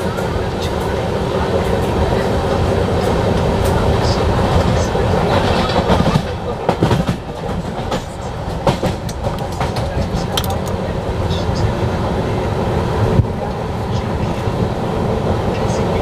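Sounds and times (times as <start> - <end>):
train wheels rumbling on track: 0.0 - 16.0
wheels clicking over rail joints: 4.7 - 10.8.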